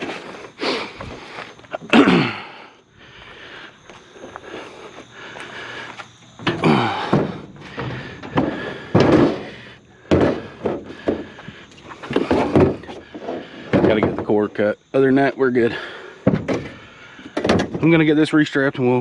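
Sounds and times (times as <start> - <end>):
scrap metal clunks and thumps: 6.4 - 14.7, 15.7 - 18.0.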